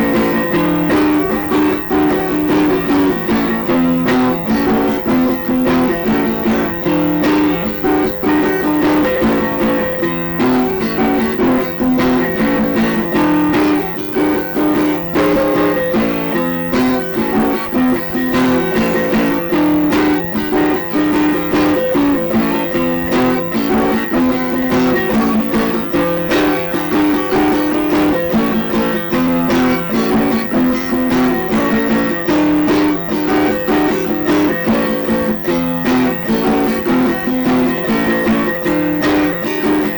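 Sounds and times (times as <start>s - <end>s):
plucked guitar pattern: 0.0s - 39.9s.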